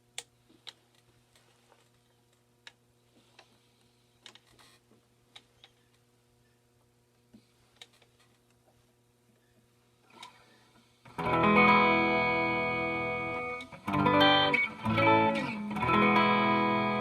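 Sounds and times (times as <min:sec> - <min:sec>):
faint amp hum: 0:00.0 - 0:17.0
electric guitar chords: 0:11.1 - 0:17.0.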